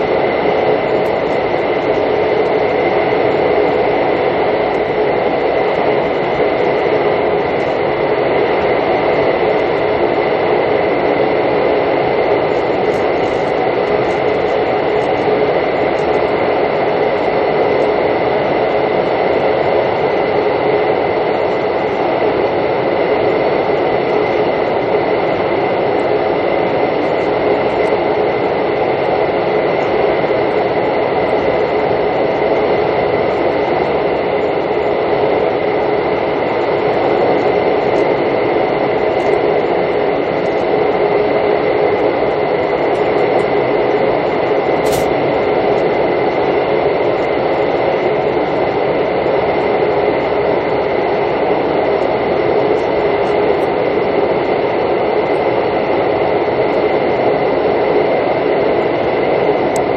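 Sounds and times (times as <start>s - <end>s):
high steady whine: 44.8s - 45.1s.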